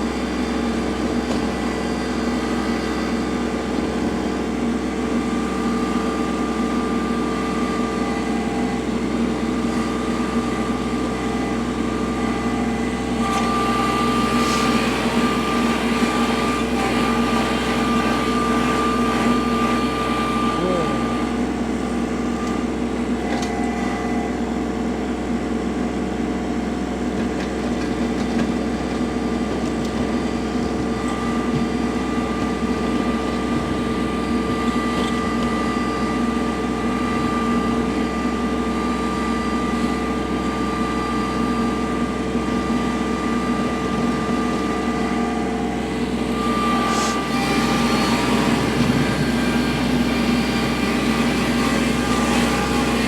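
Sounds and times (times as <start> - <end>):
tractor diesel engine running: 0.0 - 53.0
steady whine: 29.6 - 53.0.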